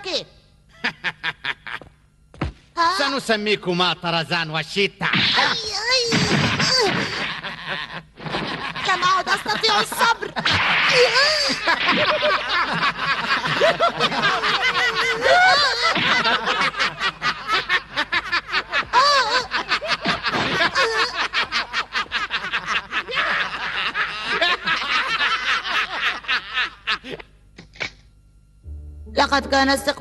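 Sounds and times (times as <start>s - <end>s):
men laughing loudly: 0.8s - 1.9s, 7.0s - 27.2s.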